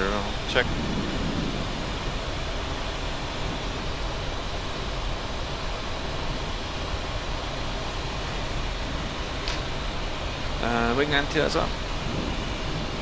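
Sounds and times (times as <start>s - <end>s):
cockpit airflow rushing: 7.5s - 13.0s.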